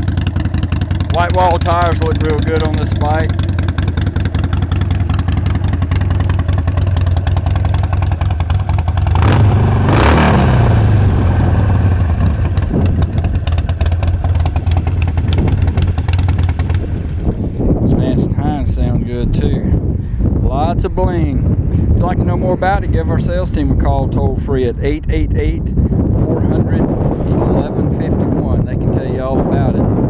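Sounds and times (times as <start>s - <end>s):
motorcycle engine idling: 0.0s - 17.9s.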